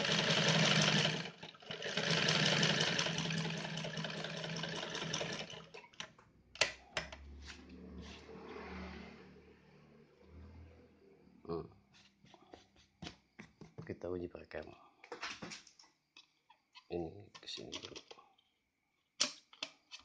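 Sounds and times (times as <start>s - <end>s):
sewing machine running: 0.0s - 5.9s
sharp clicks and knocks: 15.1s - 18.2s.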